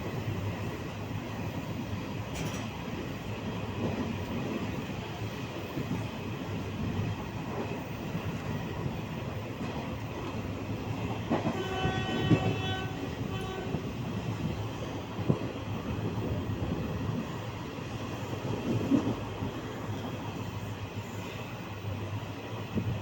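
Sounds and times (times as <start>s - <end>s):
horn blasts: 11.4s - 13.9s.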